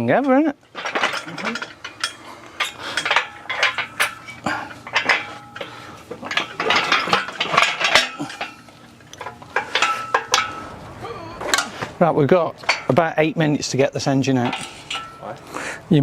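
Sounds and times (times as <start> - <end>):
metal rattling and clanking: 0.0 - 15.4.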